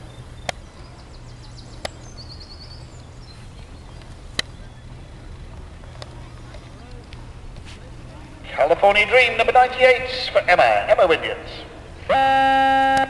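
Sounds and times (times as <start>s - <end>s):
small bird chirping: 0.0s - 6.8s
steady low rumble: 0.0s - 13.0s.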